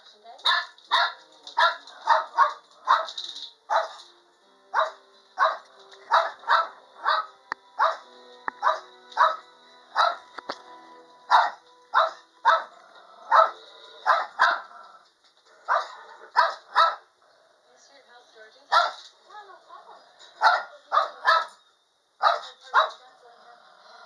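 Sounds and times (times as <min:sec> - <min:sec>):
dog barking: 0:00.4 - 0:04.1, 0:04.7 - 0:10.3, 0:11.3 - 0:14.9, 0:15.6 - 0:17.1, 0:18.7 - 0:19.1, 0:20.2 - 0:21.6, 0:22.2 - 0:23.4.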